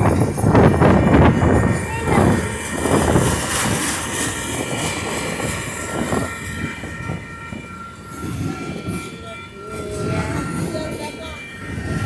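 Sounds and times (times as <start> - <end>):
train wheels rumbling on track: 0.0 - 12.0
thin high tone: 5.5 - 12.0.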